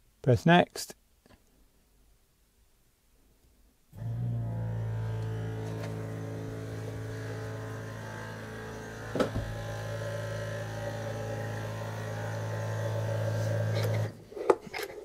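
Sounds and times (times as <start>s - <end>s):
pump motor humming: 4.0s - 14.2s.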